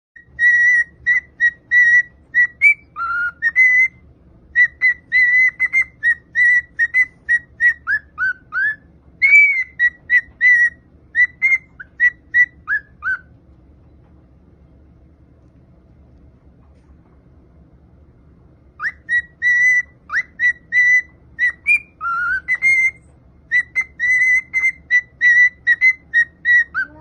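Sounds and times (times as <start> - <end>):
parrot whistling: 0.2 - 13.3, 18.8 - 27.0.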